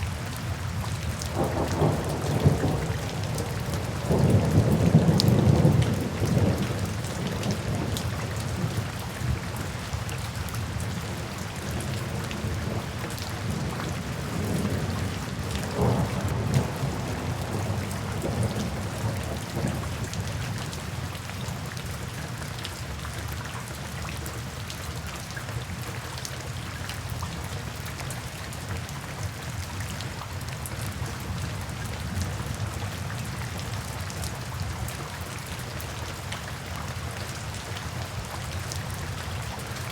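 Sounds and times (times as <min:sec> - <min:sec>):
steady rain falling: 0:00.0 - 0:39.9
thunder rumbling: 0:01.3 - 0:08.0, 0:15.6 - 0:20.3.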